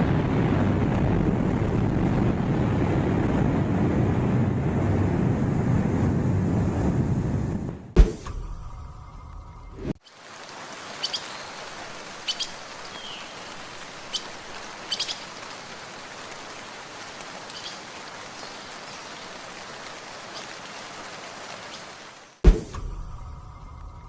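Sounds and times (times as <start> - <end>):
rain-like hiss: 0.0 - 5.6, 9.8 - 23.5.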